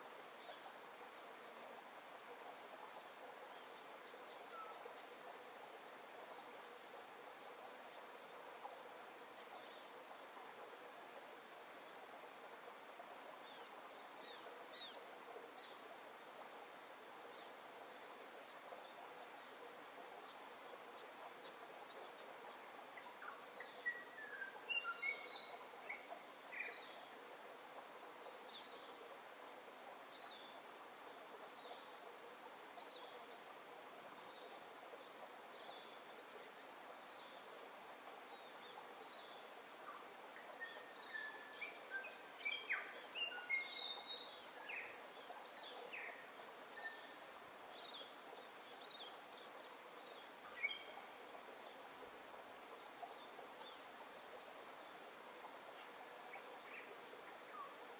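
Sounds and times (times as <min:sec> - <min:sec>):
steady hiss: 0:00.0 - 0:57.9.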